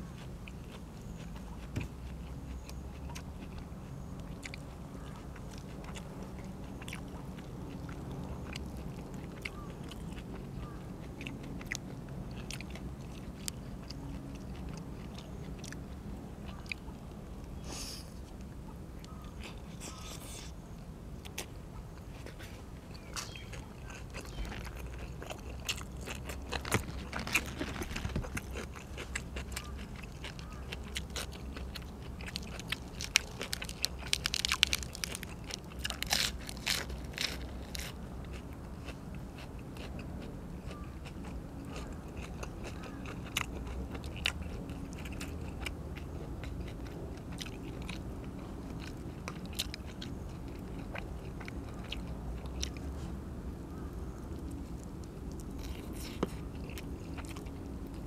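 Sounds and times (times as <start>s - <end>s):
steady low hum: 0.0s - 58.0s
wet chewing and biting: 0.1s - 17.0s, 21.2s - 53.2s, 53.8s - 58.0s
crunchy bites: 23.0s - 52.9s.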